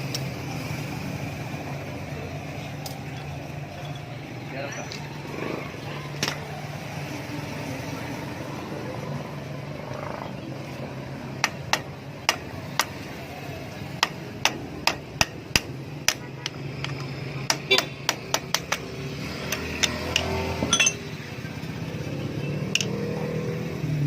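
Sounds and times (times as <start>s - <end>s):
hammer tapping on metal: 11.4s - 13.0s, 14.0s - 21.0s.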